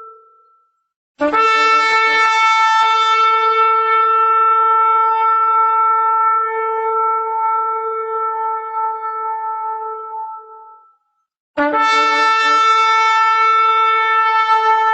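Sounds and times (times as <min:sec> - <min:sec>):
shofar blast: 0:01.2 - 0:10.9, 0:11.6 - 0:14.9.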